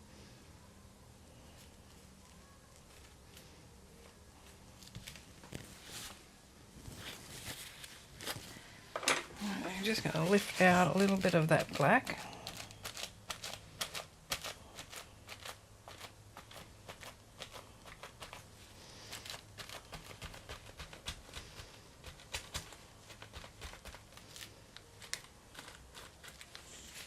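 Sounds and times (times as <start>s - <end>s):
dabbing and scratching on paper: 9.6s - 27.0s.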